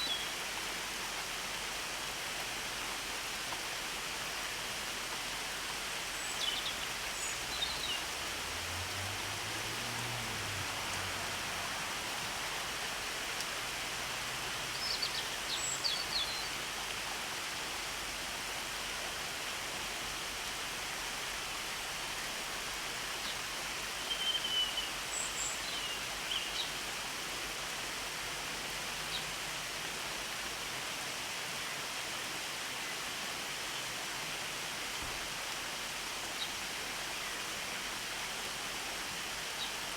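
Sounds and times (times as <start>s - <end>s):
rain hissing: 5.5s - 16.7s.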